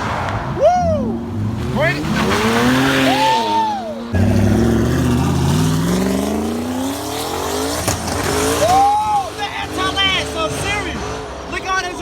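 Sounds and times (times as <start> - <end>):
car engine revving and accelerating: 0.0 - 11.5.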